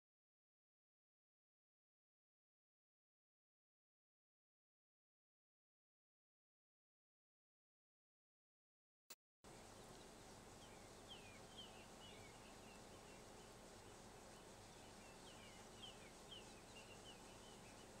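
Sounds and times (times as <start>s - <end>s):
bird chirping: 9.5s - 18.0s.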